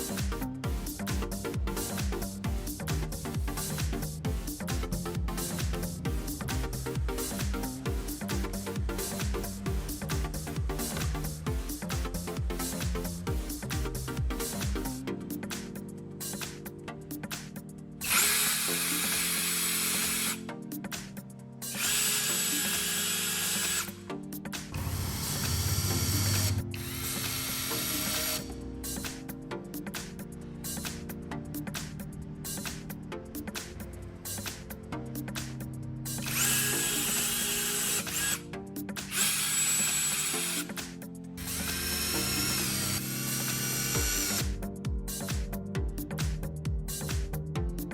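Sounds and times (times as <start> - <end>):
background music: 0.0 - 47.9
power drill whining: 18.0 - 20.4, 21.6 - 24.0, 24.8 - 28.5, 36.2 - 38.4, 39.0 - 44.5.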